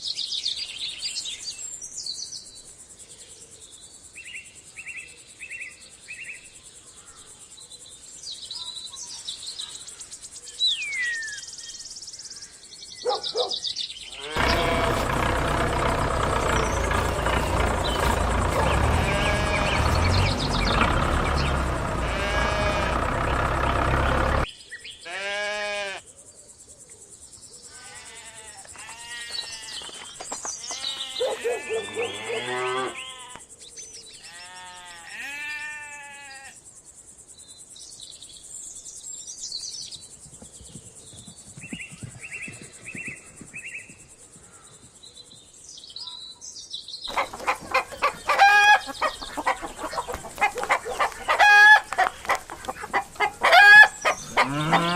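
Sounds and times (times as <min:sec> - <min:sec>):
small birds chirping: 0:05.5 - 0:24.9, 0:29.4 - 0:33.2, 0:37.4 - 0:54.9
sheep and goats bleating: 0:14.1 - 0:24.4, 0:25.0 - 0:26.0, 0:27.7 - 0:30.0, 0:30.6 - 0:33.4, 0:34.2 - 0:36.6, 0:47.2 - 0:54.9
chickens clucking: 0:14.3 - 0:24.5, 0:47.1 - 0:54.9
loud engine-like noise: 0:14.3 - 0:24.5.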